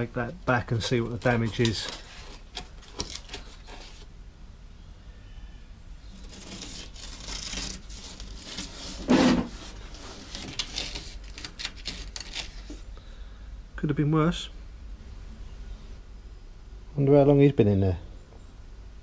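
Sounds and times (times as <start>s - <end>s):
hand scraping rusty paint: 6.2s - 12.8s.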